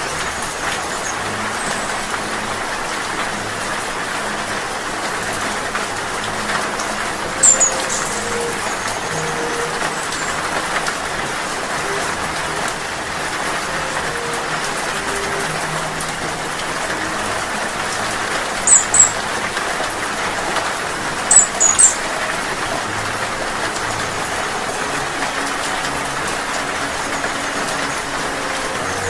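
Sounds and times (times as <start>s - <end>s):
high-pitched hummingbird chirps: 0.0s - 2.5s, 6.2s - 19.5s, 21.2s - 23.0s
steady rain falling: 0.0s - 29.0s.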